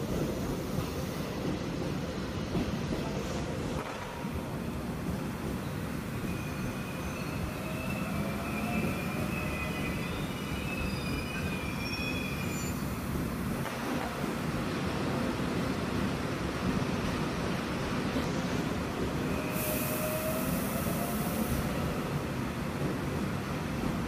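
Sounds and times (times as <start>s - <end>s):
train rumbling: 0.0s - 24.0s
wheel squeal on rails: 6.3s - 12.8s.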